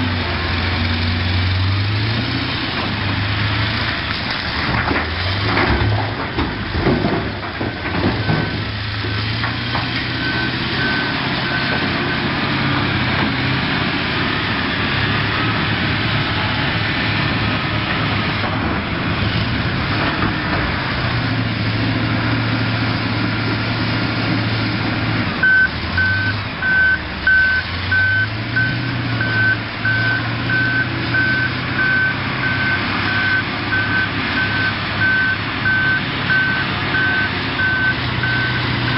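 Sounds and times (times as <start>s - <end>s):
diesel engine changing revs: 0.0s - 38.9s
reversing alarm beeping: 10.2s - 12.3s, 25.4s - 38.9s.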